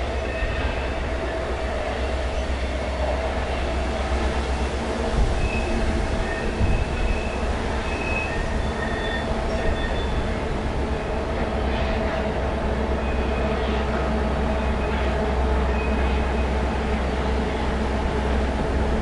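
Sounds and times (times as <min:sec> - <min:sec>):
freight train rumble: 0:00.0 - 0:19.0
high wheel squeals: 0:05.4 - 0:10.3.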